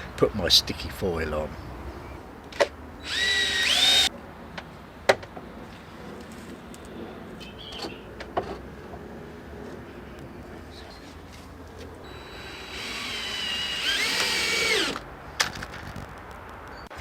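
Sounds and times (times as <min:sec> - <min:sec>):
cordless drill whining: 0:03.0 - 0:04.1, 0:12.1 - 0:15.0.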